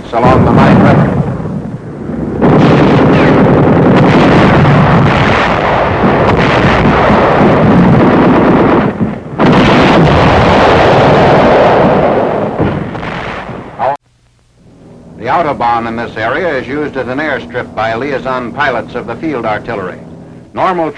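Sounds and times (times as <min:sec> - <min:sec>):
artillery explosions: 0:00.0 - 0:14.0, 0:14.8 - 0:20.9
gunfire shots: 0:02.4 - 0:13.8.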